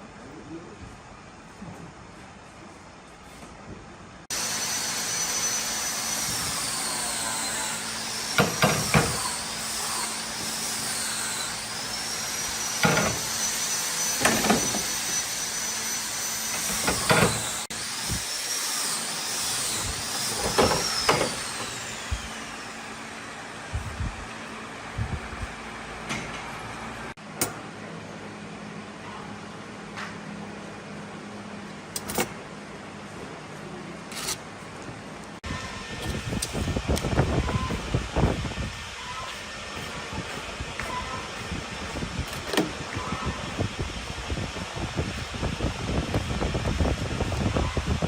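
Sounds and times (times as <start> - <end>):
power tool whining: 4.3 - 25.1.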